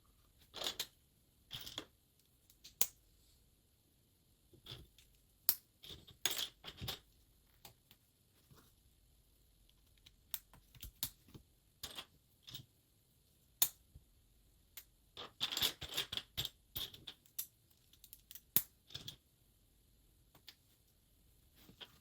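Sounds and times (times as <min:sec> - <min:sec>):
plastic bricks clicking and rattling: 0:15.2 - 0:19.2.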